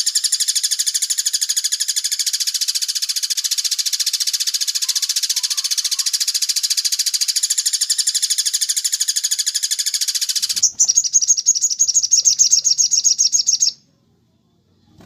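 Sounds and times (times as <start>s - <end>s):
songbird rapid trill: 0.0s - 13.8s.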